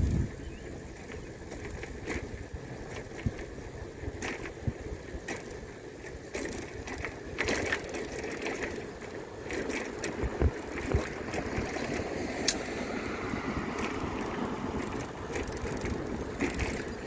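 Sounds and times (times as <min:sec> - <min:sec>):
bicycle clicks and rattles: 0:00.0 - 0:17.0
bicycle tyres rolling: 0:00.0 - 0:17.0.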